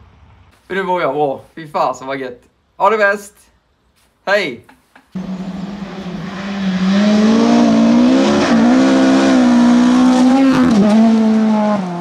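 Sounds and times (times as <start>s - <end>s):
rally car engine revving high: 5.2s - 12.0s.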